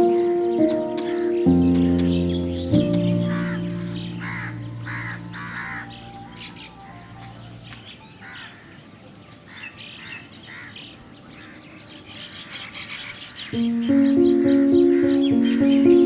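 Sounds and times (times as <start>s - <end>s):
background music: 0.0s - 7.8s, 13.6s - 16.0s
birds chirping: 0.0s - 16.0s.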